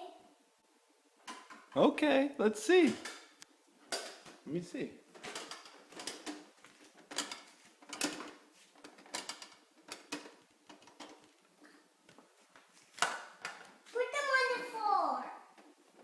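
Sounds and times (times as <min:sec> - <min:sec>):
toy trucks clacking and knocking: 0:05.2 - 0:11.4.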